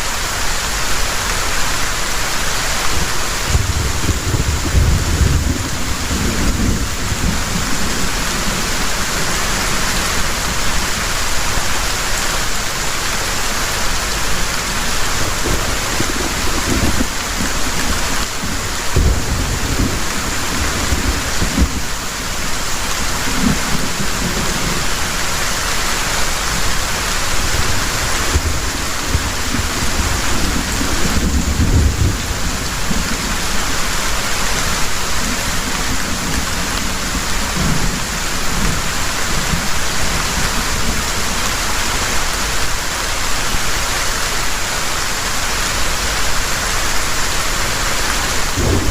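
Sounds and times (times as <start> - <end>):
heavy rain falling: 0.0 - 48.9
thunder rolling: 3.4 - 10.2, 15.1 - 22.6, 27.4 - 33.6, 48.4 - 48.9.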